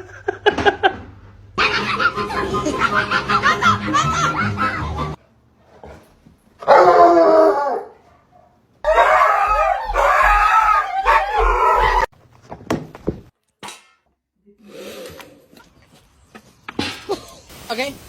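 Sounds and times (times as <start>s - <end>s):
dog howling: 6.6s - 8.0s, 8.9s - 12.1s.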